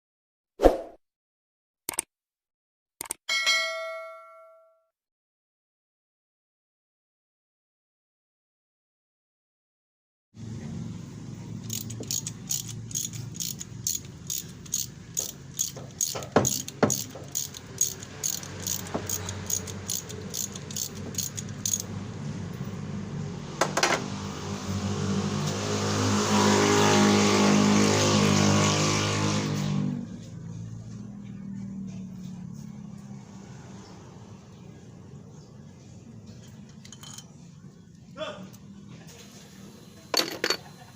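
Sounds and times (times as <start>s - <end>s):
mechanical running sound: 11.6s - 21.9s
sharp regular ticking: 11.7s - 22.0s.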